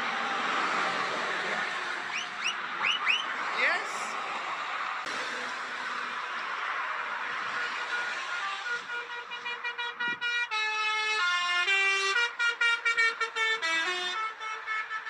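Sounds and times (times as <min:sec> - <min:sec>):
truck air horn playing a tune: 0:07.6 - 0:15.0.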